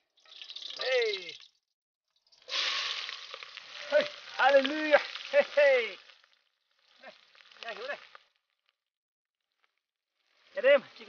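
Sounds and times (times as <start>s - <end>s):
chicken sizzling in hot pot: 0.0s - 1.4s, 2.2s - 8.3s
voices calling: 3.6s - 6.1s.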